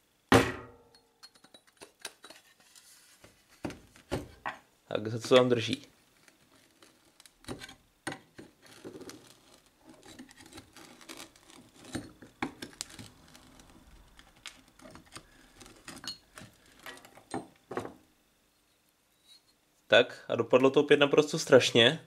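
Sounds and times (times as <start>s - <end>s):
screwdriver scraping plaster mould: 8.4s - 17.3s.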